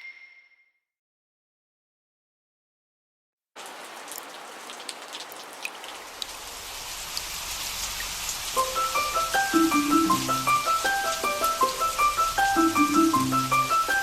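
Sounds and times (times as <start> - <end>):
raindrops ticking: 3.6 - 14.0
steady rain: 3.6 - 14.0.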